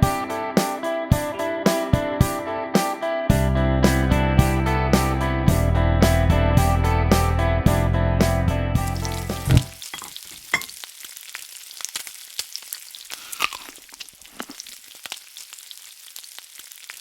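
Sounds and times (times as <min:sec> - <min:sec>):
guitar music: 0:00.0 - 0:09.7
food sizzling in a pan: 0:08.9 - 0:17.0.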